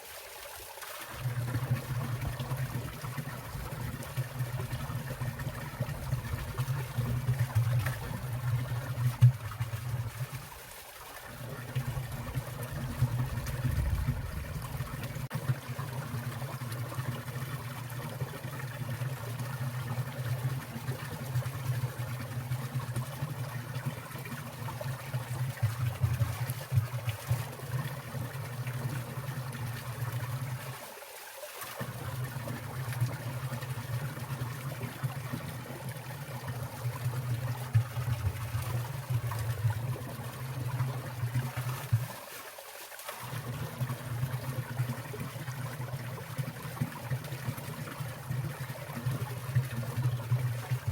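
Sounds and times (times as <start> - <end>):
stream water trickling: 0.0 - 50.9
low rumble: 13.3 - 15.2.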